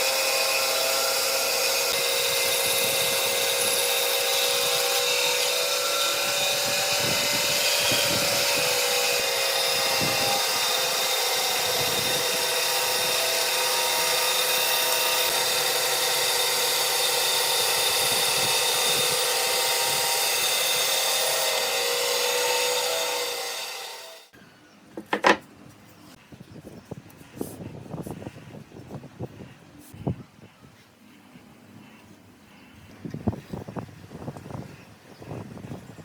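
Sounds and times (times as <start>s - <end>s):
power tool motor whining: 0.0s - 24.3s.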